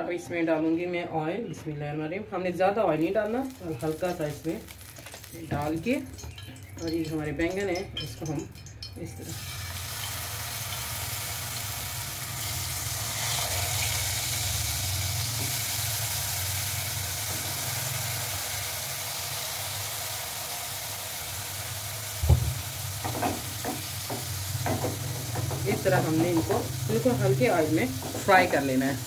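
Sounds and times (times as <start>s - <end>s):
vegetable slices sizzling in oil: 9.3s - 29.0s
knock: 22.2s - 25.6s.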